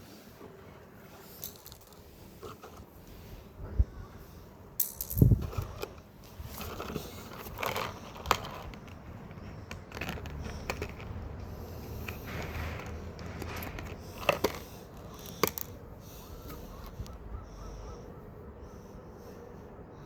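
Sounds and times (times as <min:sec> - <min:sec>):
knocks and clicks of hard objects: 0:12.0 - 0:15.8.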